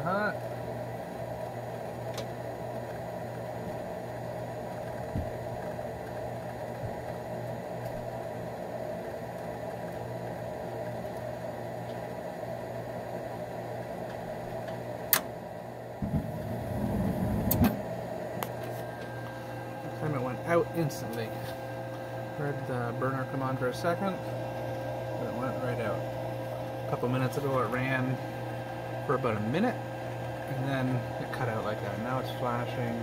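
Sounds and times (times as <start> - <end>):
burner igniting with low rumble: 0.0 - 33.0
furnace inducer motor humming: 0.0 - 33.0
furnace click: 17.2 - 19.4.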